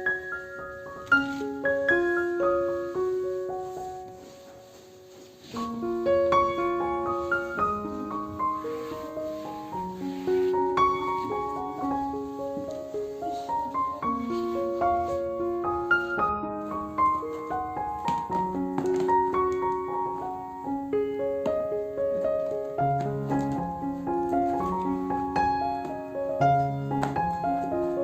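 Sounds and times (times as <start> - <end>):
gentle piano music: 0.0 - 28.0.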